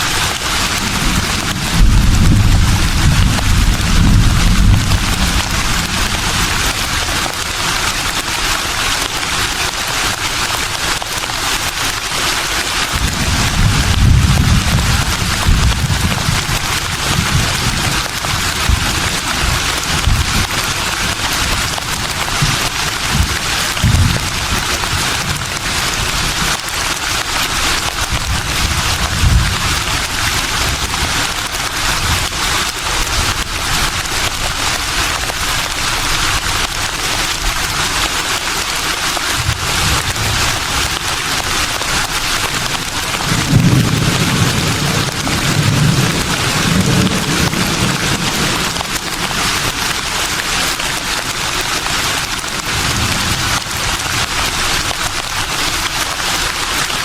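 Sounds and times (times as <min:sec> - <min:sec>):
breeze rustling leaves: 0:00.0 - 0:57.0
low rumbles of gusting wind: 0:00.4 - 0:07.8, 0:13.0 - 0:21.3.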